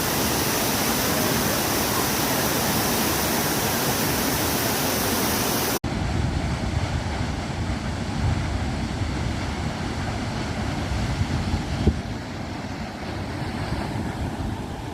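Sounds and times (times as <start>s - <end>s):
waterfall roaring: 0.0s - 14.9s
wind buffeting microphone: 5.9s - 14.9s.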